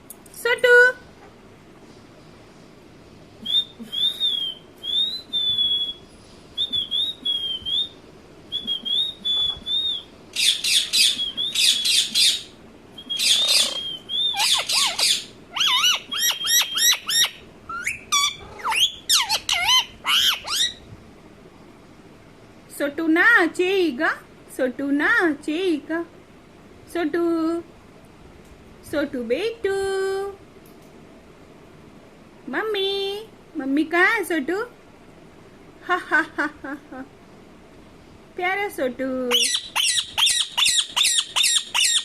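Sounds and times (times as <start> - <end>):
parrot whistling notes: 13.0 - 20.8, 39.3 - 42.0
parrot harsh screeches: 13.2 - 20.8, 39.4 - 42.0.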